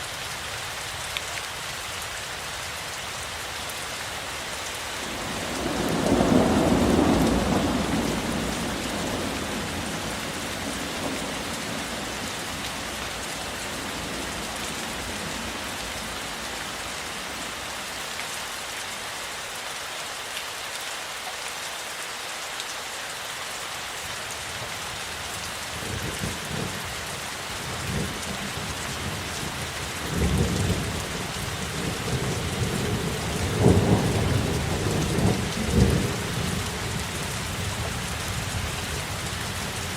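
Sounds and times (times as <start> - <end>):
rain hiss: 0.0 - 39.9
thunder rumbling: 5.0 - 16.4, 30.0 - 39.9.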